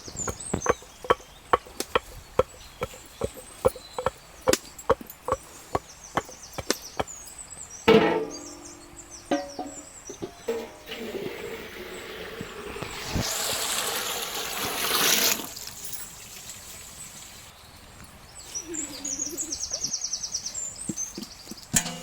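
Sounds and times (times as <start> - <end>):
water pouring into a pot: 10.8 - 15.8.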